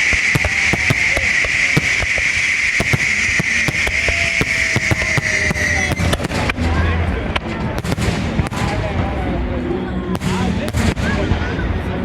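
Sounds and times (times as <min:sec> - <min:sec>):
steady hiss: 0:00.0 - 0:05.8
fireworks bangs and crackles: 0:00.0 - 0:12.0.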